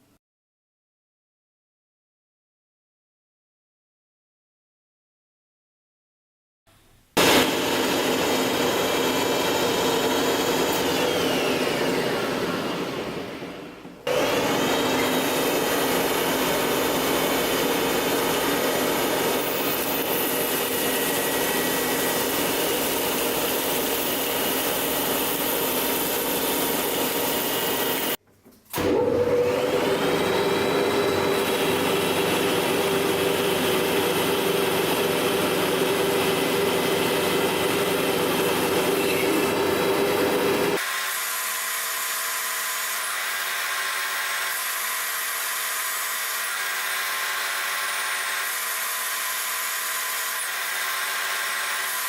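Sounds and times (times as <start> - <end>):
machine tool motor whining: 7.2 - 41.3.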